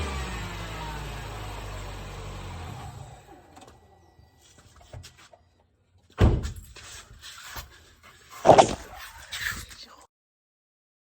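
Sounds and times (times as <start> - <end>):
engine hum: 0.0 - 4.8
heavy thunk: 8.4 - 8.9.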